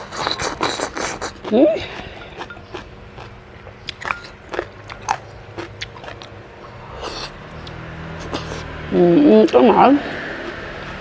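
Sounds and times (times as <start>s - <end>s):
wet chewing and lip-smacking: 0.0s - 8.7s.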